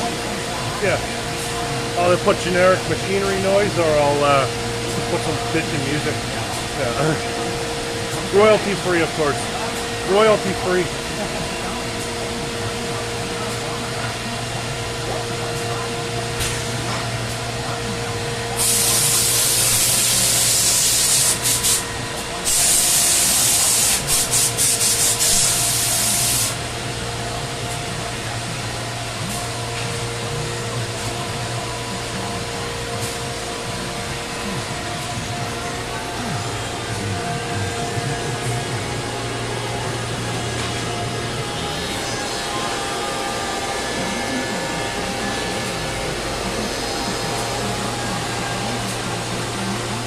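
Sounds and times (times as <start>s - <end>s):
cnc router humming: 0.0s - 50.0s
loud high hiss: 18.5s - 26.8s.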